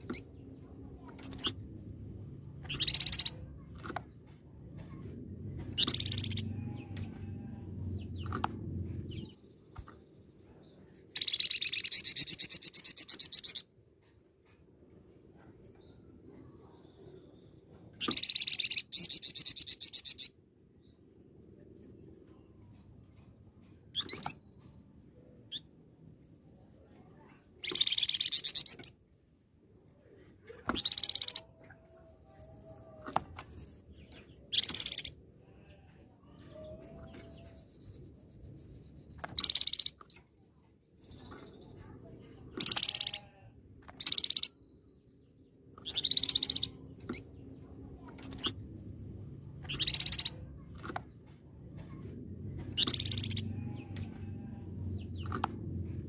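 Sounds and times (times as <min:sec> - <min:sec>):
songbird singing trilled bursts: 0:34.5 - 0:35.2, 0:45.8 - 0:47.2, 0:49.6 - 0:50.7, 0:52.8 - 0:53.5.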